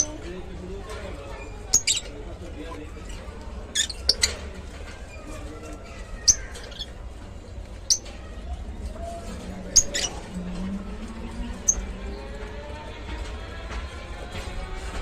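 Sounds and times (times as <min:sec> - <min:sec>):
lovebirds chirping: 0:01.4 - 0:02.2, 0:03.0 - 0:04.5, 0:05.2 - 0:08.2, 0:09.3 - 0:10.4.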